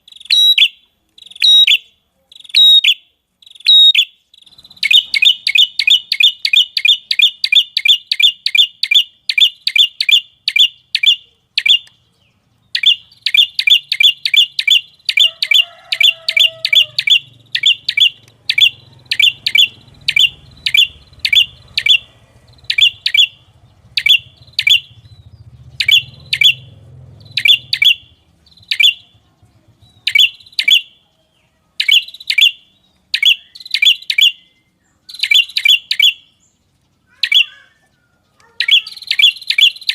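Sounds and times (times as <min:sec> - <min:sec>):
songbird sharp chip notes: 0:00.1 - 0:29.3.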